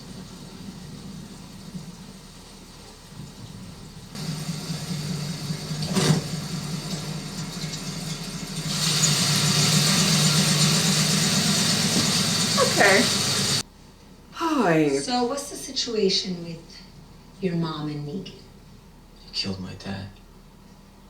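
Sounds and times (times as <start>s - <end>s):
hiss: 0.0s - 13.6s
low steady rumble: 0.0s - 19.2s.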